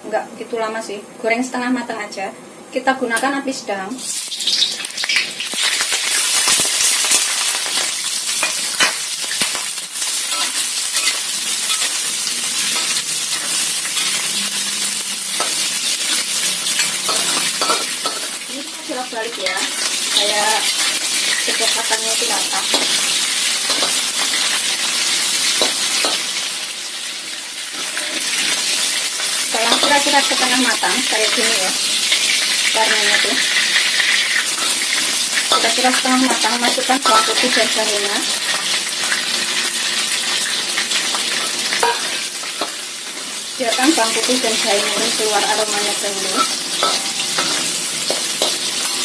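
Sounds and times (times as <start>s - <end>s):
chicken sizzling in oil: 4.0s - 49.0s
metal spatula scraping wok: 27.7s - 28.9s, 41.3s - 49.0s.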